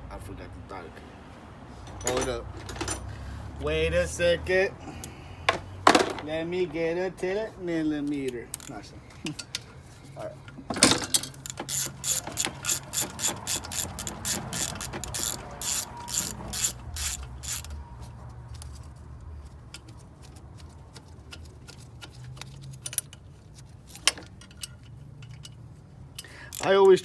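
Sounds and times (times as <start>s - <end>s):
socket ratchet clicking: 11.2s - 17.8s.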